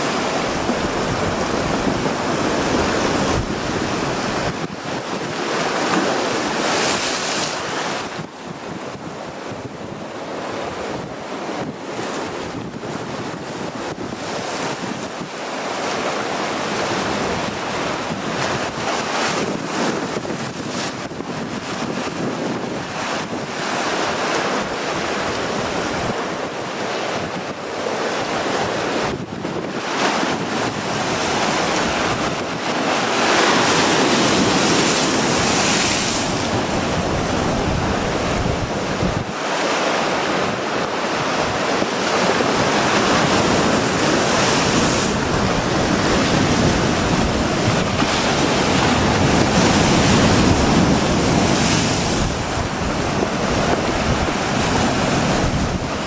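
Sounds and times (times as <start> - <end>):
wind buffeting microphone: 0.0 - 15.4, 16.8 - 56.0
surf breaking on rocky shore: 0.0 - 56.0.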